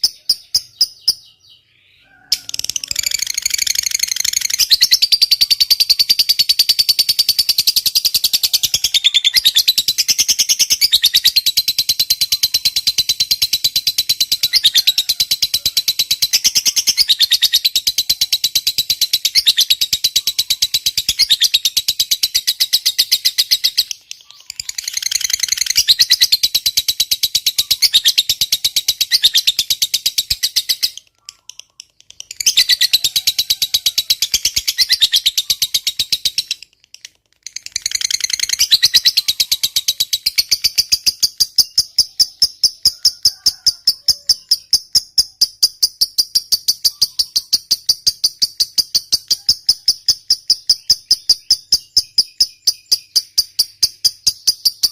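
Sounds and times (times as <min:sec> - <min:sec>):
lovebird chattering trill: 0:00.0 - 0:54.9.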